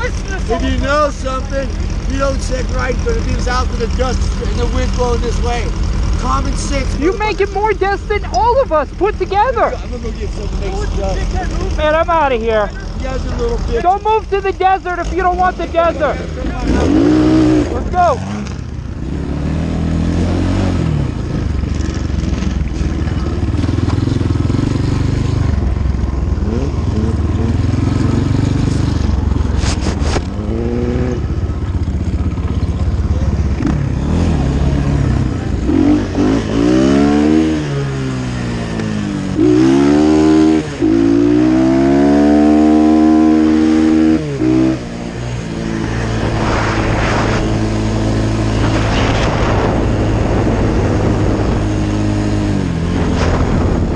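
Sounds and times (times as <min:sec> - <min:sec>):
dirt bike engine shifting gears: 0:00.0 - 0:53.9
wind rushing: 0:44.2 - 0:53.9.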